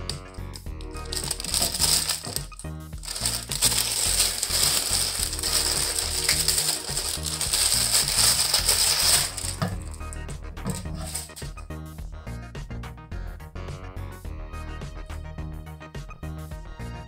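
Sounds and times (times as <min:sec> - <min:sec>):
background music: 0:00.0 - 0:17.0
packaging crinkling: 0:00.6 - 0:11.6.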